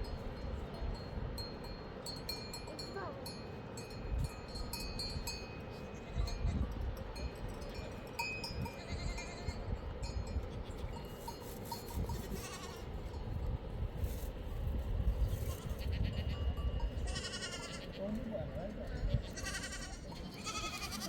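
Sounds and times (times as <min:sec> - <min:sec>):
faint animal bells clinking: 0:00.0 - 0:21.0
livestock bleating: 0:08.8 - 0:09.6, 0:12.3 - 0:12.9, 0:15.4 - 0:18.2, 0:19.1 - 0:21.0.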